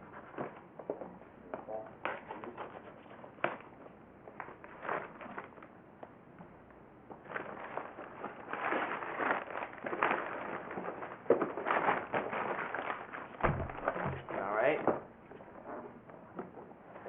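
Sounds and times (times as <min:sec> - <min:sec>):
packaging rustling and crinkling: 0:04.4 - 0:05.7, 0:07.1 - 0:14.7.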